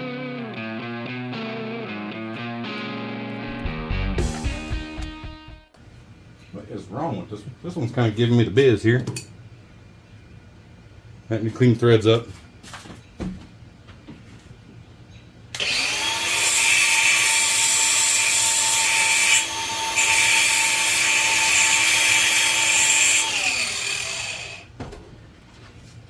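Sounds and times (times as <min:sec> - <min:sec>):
electric wire wheel motor: 0:15.6 - 0:24.7.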